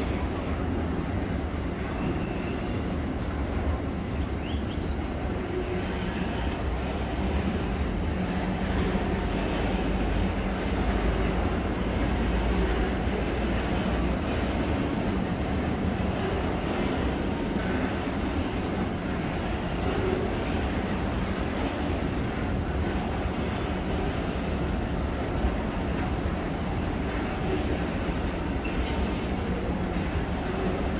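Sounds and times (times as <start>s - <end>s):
freight wagons rumbling on rails: 0.0s - 30.9s.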